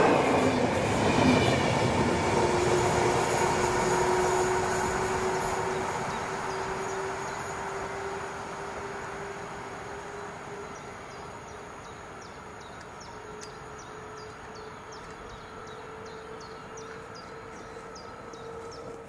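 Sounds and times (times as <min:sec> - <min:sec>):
train rumbling: 0:00.0 - 0:19.0
bird chirping: 0:10.7 - 0:19.0.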